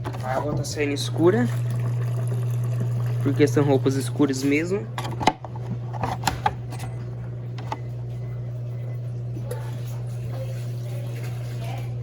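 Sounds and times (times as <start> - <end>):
water draining: 0.0 - 4.1
washing machine humming: 0.0 - 12.0.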